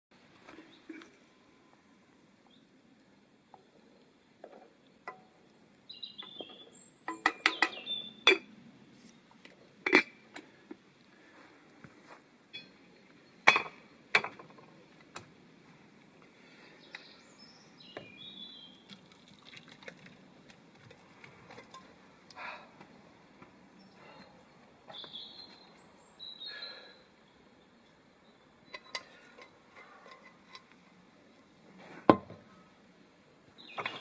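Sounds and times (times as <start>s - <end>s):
bird chirps: 5.2s - 8.4s, 23.8s - 27.4s, 33.6s - 34.0s.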